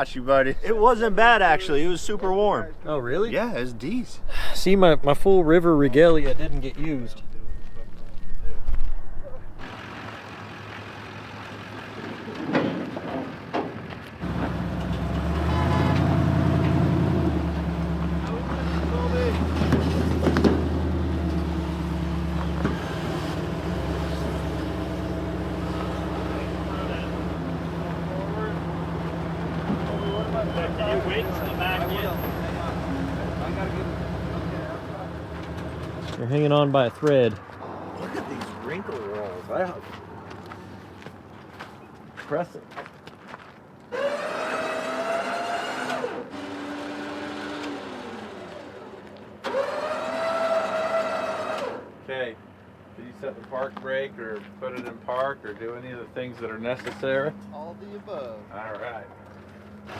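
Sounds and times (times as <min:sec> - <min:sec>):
vehicle engine humming: 0:09.5 - 0:42.0, 0:43.8 - 0:59.9
electric motor whining: 0:43.9 - 0:51.9.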